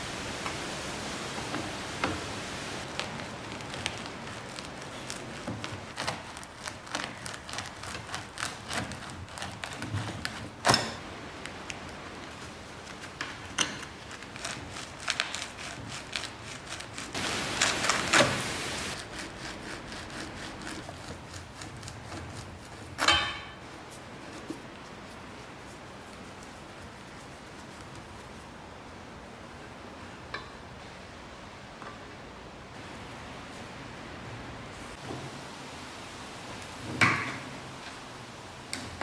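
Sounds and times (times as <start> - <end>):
tool scraping: 12.3 - 28.2.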